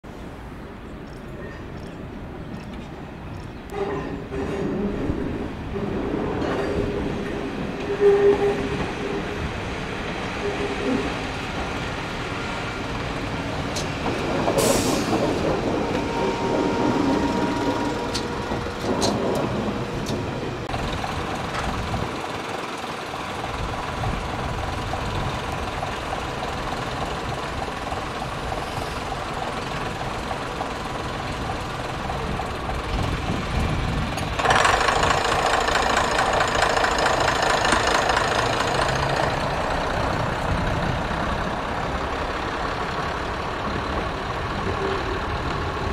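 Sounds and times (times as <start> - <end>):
heavy diesel engine running: 8.8 - 45.9
loud rushing hiss: 14.5 - 16.9.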